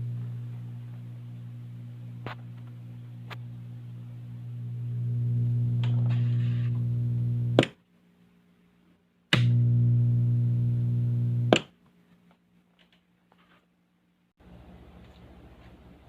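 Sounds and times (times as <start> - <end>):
loudspeaker electrical hum: 0.0 - 7.7, 9.3 - 11.6
switch click: 9.3 - 9.6.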